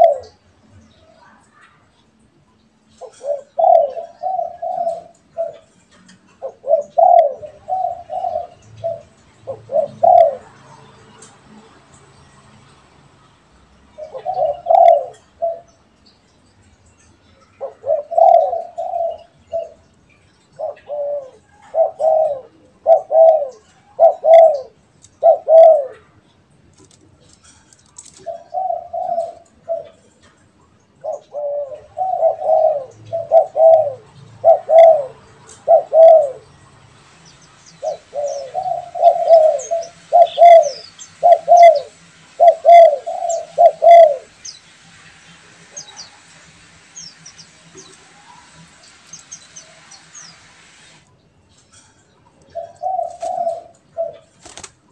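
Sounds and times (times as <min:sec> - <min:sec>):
dove cooing: 0:00.0 - 0:01.8, 0:02.8 - 0:11.4, 0:13.9 - 0:15.8, 0:17.6 - 0:19.9, 0:20.6 - 0:26.2, 0:27.2 - 0:36.6, 0:37.8 - 0:44.4, 0:51.7 - 0:54.7
small birds chirping: 0:00.0 - 0:54.9.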